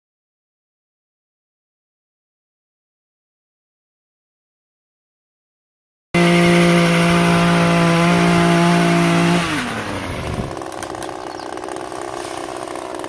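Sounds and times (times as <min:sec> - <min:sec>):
chainsaw engine revving and idling: 0:06.2 - 0:13.0.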